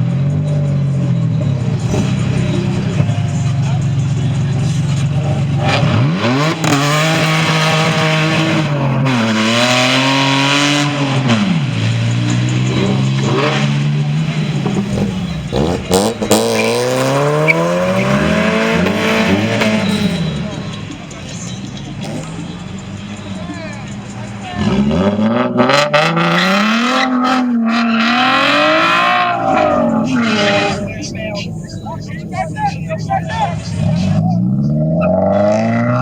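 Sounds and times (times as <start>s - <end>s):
car engine idling and revving: 0.0s - 36.0s.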